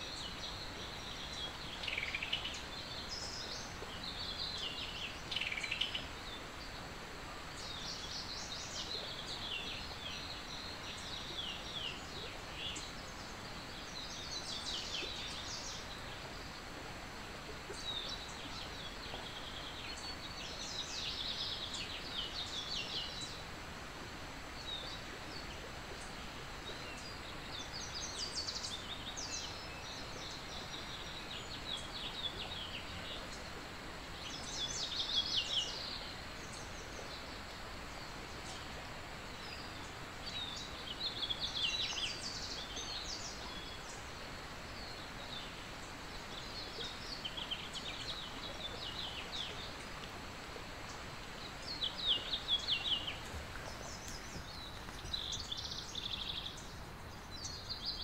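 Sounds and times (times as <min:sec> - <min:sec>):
background hiss: 0:00.0 - 0:58.0
birds singing: 0:39.3 - 0:58.0.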